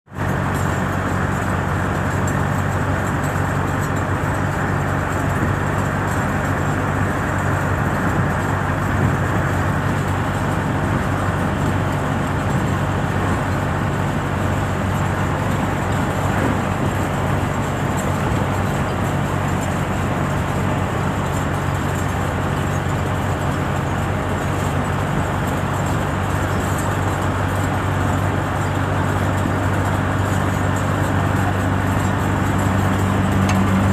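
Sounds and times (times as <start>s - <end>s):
road noise: 0.0s - 33.9s
vehicle engine hum: 0.0s - 33.9s.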